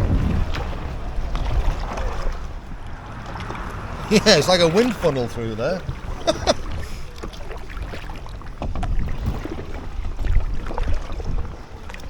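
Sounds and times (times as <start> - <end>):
paddle splashing in water: 0.0 - 12.0
wind buffeting microphone: 0.0 - 12.0.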